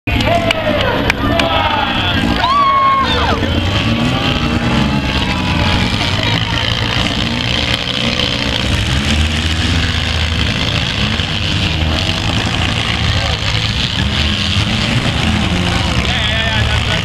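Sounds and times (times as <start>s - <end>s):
car engines revving: 0.1s - 17.0s
crowd voices: 0.1s - 17.0s.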